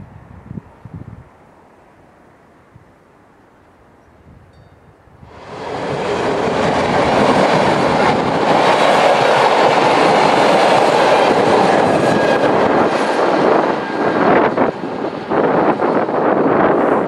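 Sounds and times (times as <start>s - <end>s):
train wheels running on rails: 4.6s - 17.0s.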